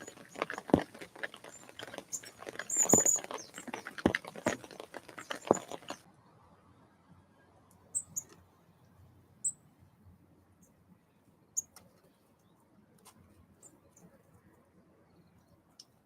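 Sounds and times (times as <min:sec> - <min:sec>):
small birds chipping: 0:00.0 - 0:06.0, 0:07.9 - 0:08.4.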